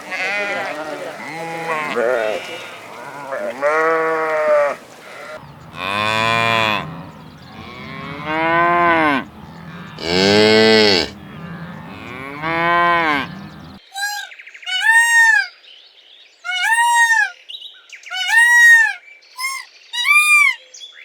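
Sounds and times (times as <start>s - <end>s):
cow mooing: 0.0s - 13.8s.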